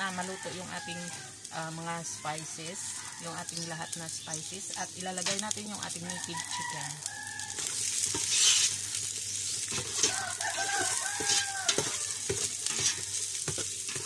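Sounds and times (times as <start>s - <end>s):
aromatics sizzling in hot oil: 0.0s - 14.0s
spoon stirring in a pot: 7.5s - 14.0s
chicken calling: 10.0s - 12.2s.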